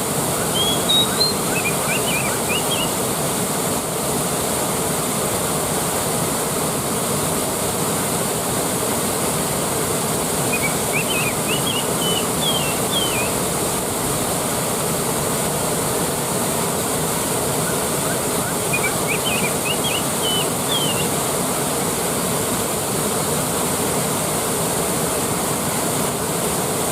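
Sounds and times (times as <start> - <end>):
waterfall rushing: 0.0 - 26.9
bird chirping: 0.4 - 3.0, 10.5 - 13.4, 17.6 - 21.1.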